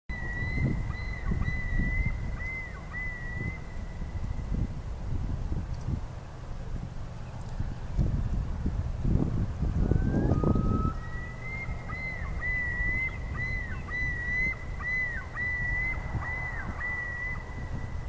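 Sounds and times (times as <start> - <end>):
low wind rumble: 0.1 - 18.0
loon calling: 10.0 - 18.0.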